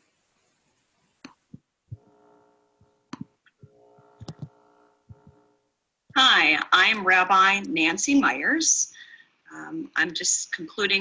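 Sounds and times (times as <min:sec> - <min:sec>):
faint humming tone: 0:01.9 - 0:05.8
mouse and keyboard clicks: 0:04.2 - 0:04.5.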